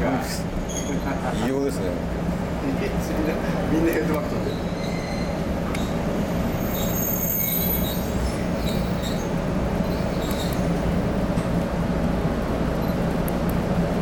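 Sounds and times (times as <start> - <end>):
train running rumble: 0.0 - 14.0
high thin wheel squeal: 0.6 - 1.0, 4.4 - 11.0.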